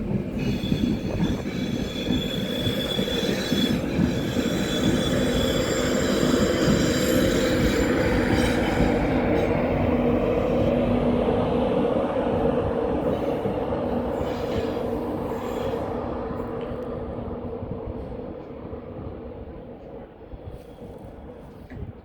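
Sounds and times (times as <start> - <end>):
train rail rumble: 0.0 - 22.0
wheels squealing on rails: 0.2 - 10.8, 13.0 - 16.6.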